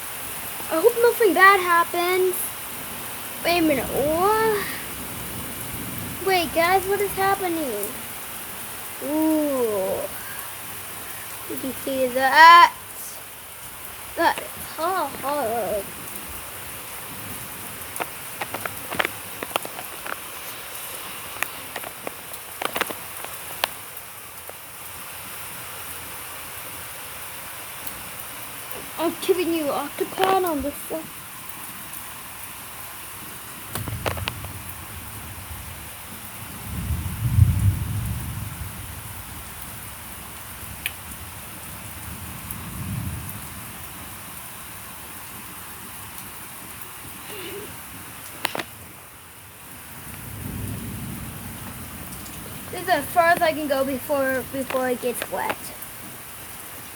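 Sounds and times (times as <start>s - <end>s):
heavy rain: 0.0s - 56.9s
low thunder rumble: 2.8s - 13.2s, 33.6s - 44.2s, 49.8s - 56.3s.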